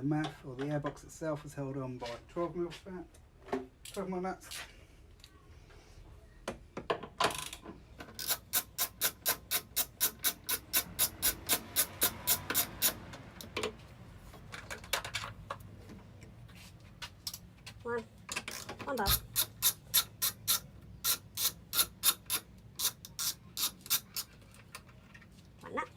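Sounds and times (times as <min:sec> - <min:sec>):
ratchet wrench clicking: 0:08.2 - 0:13.2, 0:18.5 - 0:24.4.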